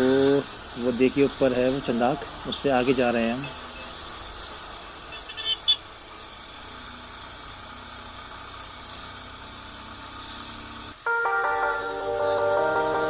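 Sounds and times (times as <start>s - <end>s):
background music: 11.0s - 13.0s.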